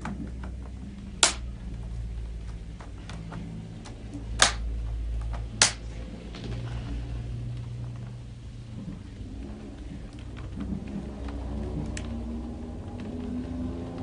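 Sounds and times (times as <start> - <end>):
low steady hum: 0.0 - 14.0
loud sharp snaps: 1.2 - 1.6, 4.3 - 4.7, 5.6 - 5.9.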